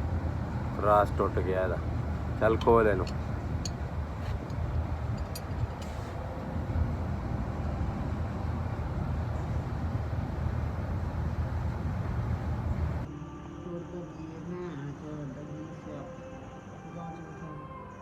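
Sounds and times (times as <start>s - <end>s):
engine rumbling: 0.0s - 13.1s.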